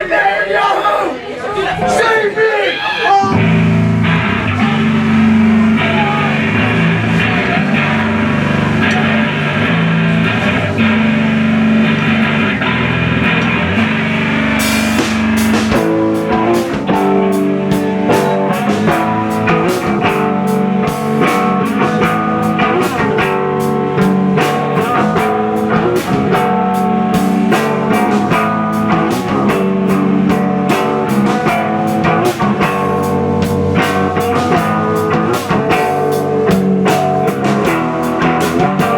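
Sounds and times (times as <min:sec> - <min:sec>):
drum kit beat with cymbals: 0:03.3 - 0:38.9
guitars holding chords: 0:03.3 - 0:38.9.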